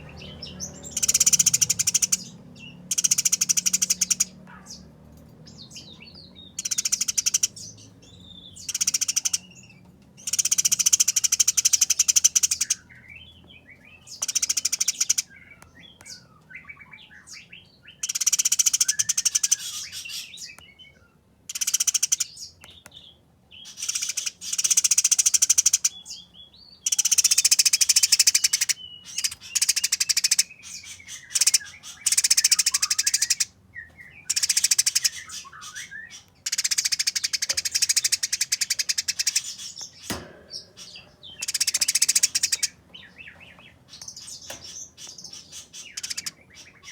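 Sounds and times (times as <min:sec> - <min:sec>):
sparrow harsh chattering calls: 0:00.0 - 0:46.9
bird chirps and whistles: 0:18.0 - 0:20.7, 0:26.9 - 0:40.2.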